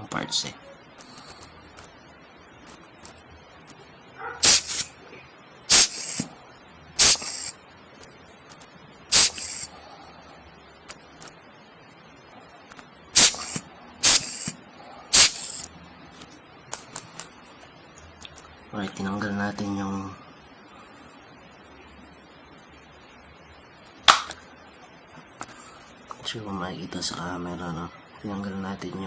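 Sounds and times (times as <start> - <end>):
air blower puffs: 4.4 - 4.9, 5.7 - 6.3, 7.0 - 7.5, 9.1 - 9.7, 13.2 - 14.5, 15.2 - 15.7.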